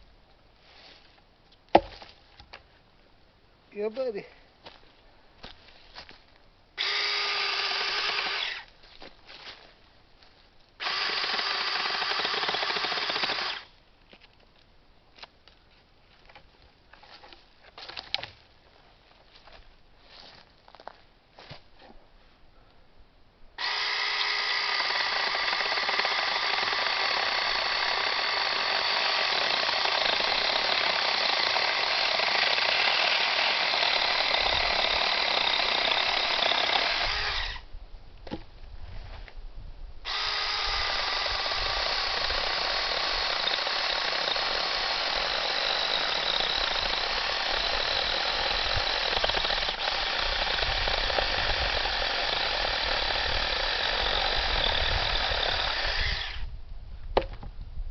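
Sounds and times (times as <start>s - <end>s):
mini chainsaw cutting wood: 6.8s - 8.7s, 10.8s - 13.7s, 23.6s - 37.6s, 40.1s - 56.5s.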